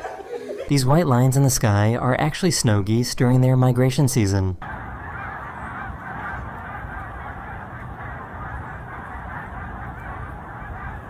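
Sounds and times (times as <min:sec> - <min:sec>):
geese honking: 0:04.6 - 0:11.0.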